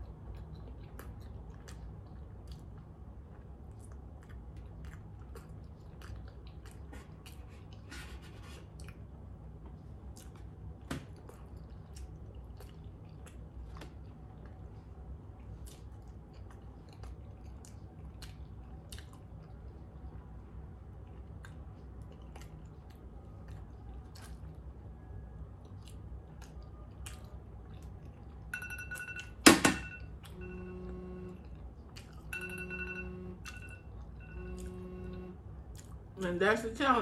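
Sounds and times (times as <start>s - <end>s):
chewing food: 0.0s - 29.4s, 31.0s - 32.8s, 33.4s - 36.2s
phone timer alarm beeping: 28.5s - 31.4s, 32.3s - 35.4s.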